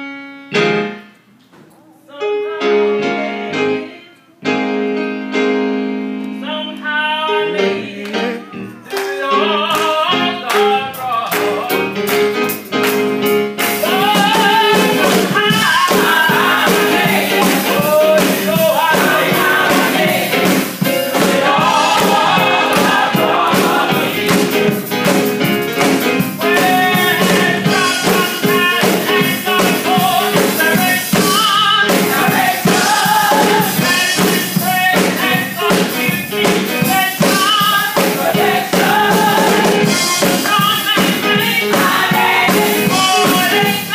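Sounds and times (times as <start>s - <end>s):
gospel choir singing: 7.2s - 12.4s, 13.5s - 43.9s
band playing steady beat: 9.1s - 43.9s.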